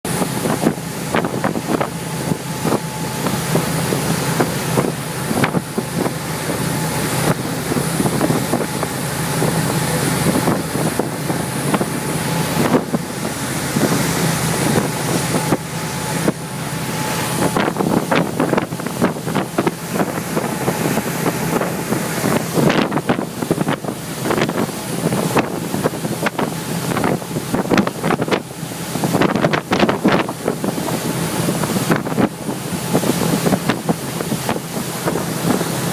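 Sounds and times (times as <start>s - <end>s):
boat engine drone: 0.0s - 35.9s
rushing water and splashes: 0.0s - 35.9s
wind buffeting microphone: 0.1s - 35.9s.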